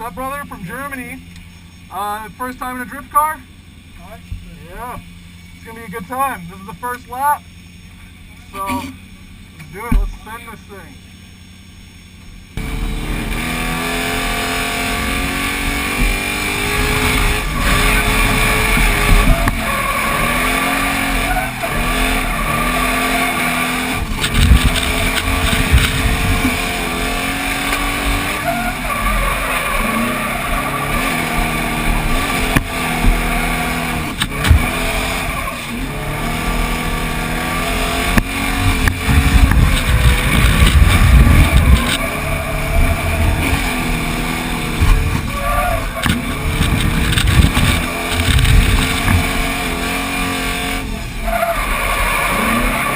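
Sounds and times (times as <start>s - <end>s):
truck engine revving: 0.0s - 52.9s
loud thumps: 15.2s - 21.2s, 21.8s - 28.4s, 29.8s - 35.3s, 36.3s - 49.8s
tyre squeal: 16.5s - 52.9s.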